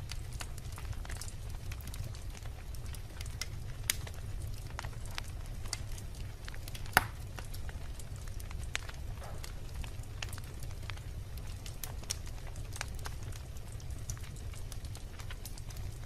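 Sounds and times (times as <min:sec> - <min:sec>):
fire rumbling: 0:00.0 - 0:16.0
logs crackling: 0:00.0 - 0:16.0
loud sharp pop: 0:07.0 - 0:07.2, 0:09.2 - 0:09.5.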